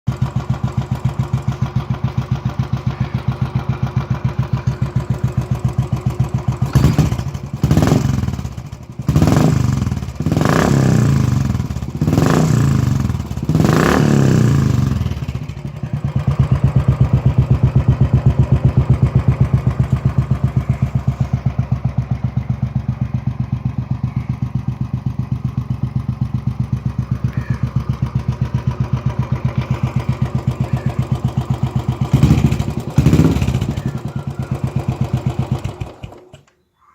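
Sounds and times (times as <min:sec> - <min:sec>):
motorcycle engine idling: 0:00.1 - 0:36.9
engine revving in throttle blips: 0:06.5 - 0:19.2, 0:29.0 - 0:36.5.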